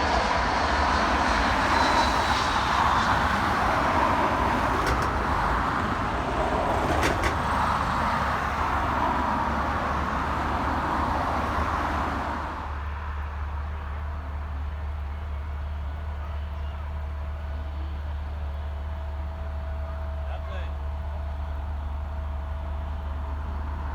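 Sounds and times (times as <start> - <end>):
jet engine roar: 0.0 - 12.7.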